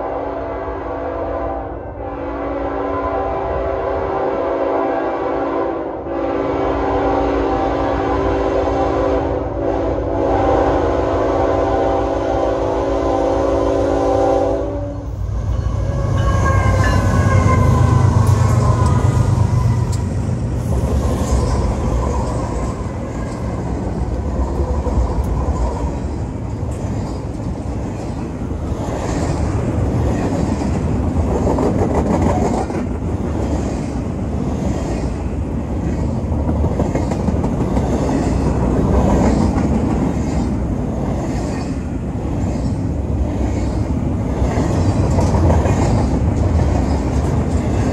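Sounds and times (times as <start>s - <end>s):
train horn sounding a chord: 0.0s - 19.8s
rail cars rolling: 0.0s - 47.9s
locomotive engine rumble: 15.0s - 33.1s.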